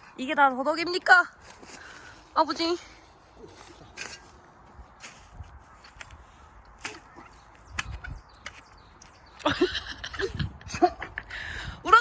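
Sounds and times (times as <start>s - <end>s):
hand tool digging in soil: 1.4s - 8.8s.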